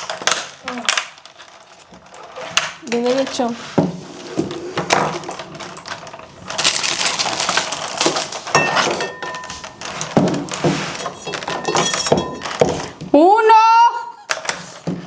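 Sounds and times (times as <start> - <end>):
scraping and rustling: 0.0 - 13.2
dishes and utensils clinking: 8.5 - 13.1.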